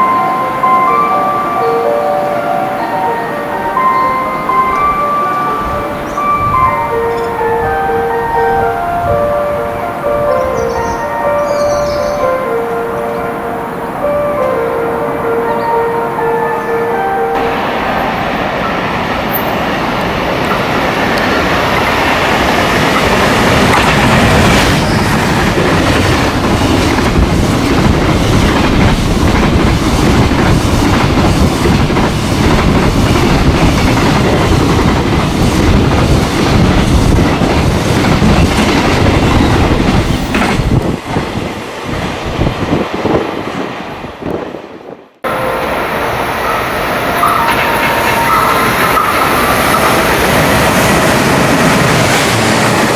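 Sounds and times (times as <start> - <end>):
steady train rumble: 0.0 - 52.9
train wheels clacking over rail joints: 18.6 - 41.4, 47.2 - 52.9
train wheel squeal: 24.6 - 25.4, 46.5 - 51.2.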